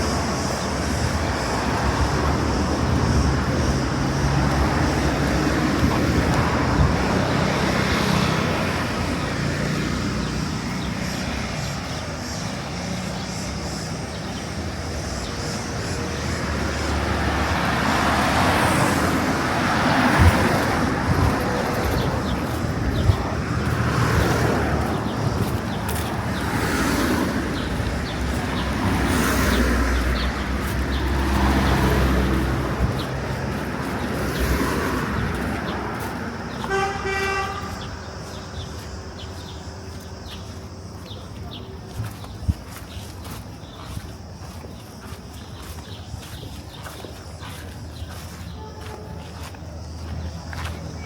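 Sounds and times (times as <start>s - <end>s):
vehicles passing: 0.0s - 51.0s
vehicle horn toot: 36.6s - 38.0s, 48.5s - 49.4s.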